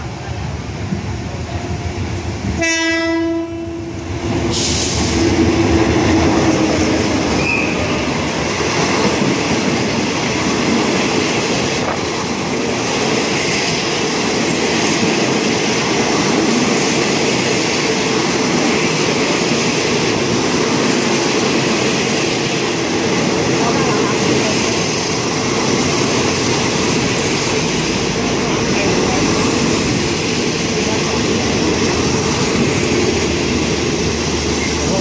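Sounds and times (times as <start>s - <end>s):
train wheels rumbling on rails: 0.0s - 35.0s
high squeal: 7.4s - 8.0s.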